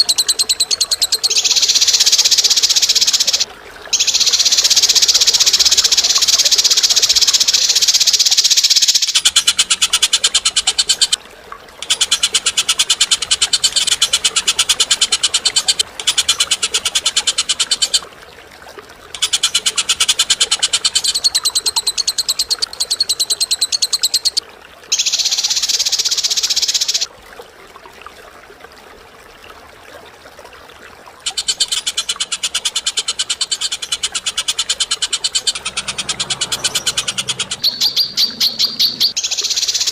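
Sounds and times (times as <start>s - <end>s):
bird chattering trills: 0.0s - 11.2s, 31.3s - 39.9s.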